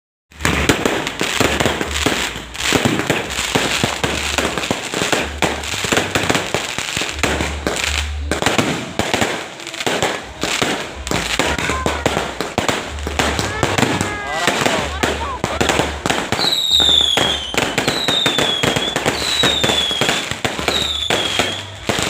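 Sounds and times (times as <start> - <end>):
fireworks and firecrackers bangs: 0.3 - 22.0.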